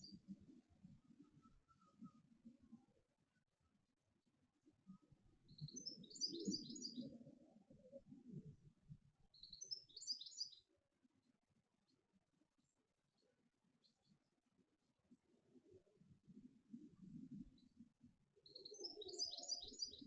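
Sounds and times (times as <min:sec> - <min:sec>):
small bird singing: 0:05.5 - 0:07.2, 0:09.3 - 0:10.7, 0:18.4 - 0:20.0.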